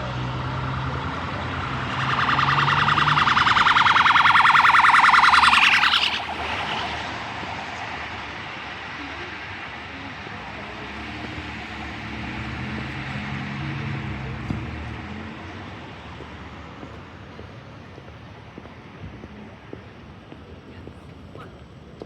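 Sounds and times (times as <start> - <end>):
electronic siren pulsing: 0.0 - 13.1
street traffic: 0.0 - 22.0.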